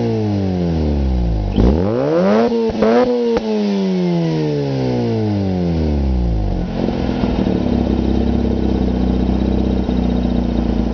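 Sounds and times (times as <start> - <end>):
rotary engine idling lumpily: 6.3 - 10.9.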